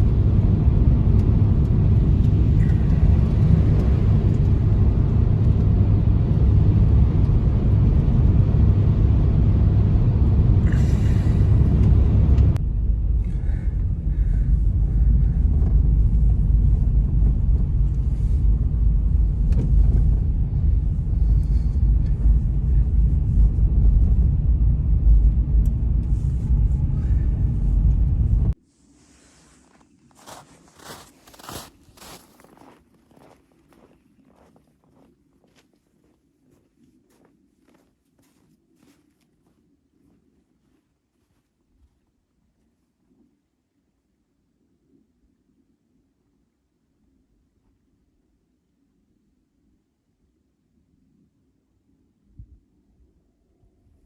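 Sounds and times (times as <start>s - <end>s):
snowstorm wind rumble: 0.0s - 32.8s.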